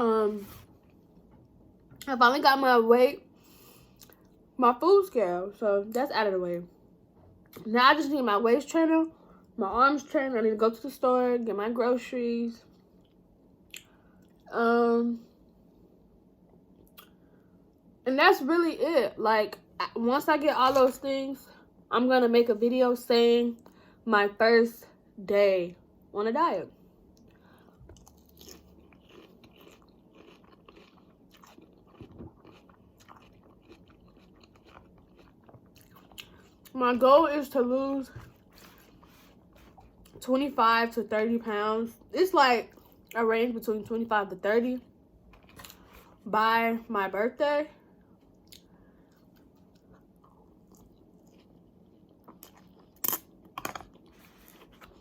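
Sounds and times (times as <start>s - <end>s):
person chewing with crunches: 27.1s - 36.8s, 38.2s - 40.2s, 45.2s - 46.2s, 48.1s - 55.0s
crisp crunching bites: 28.1s - 35.6s.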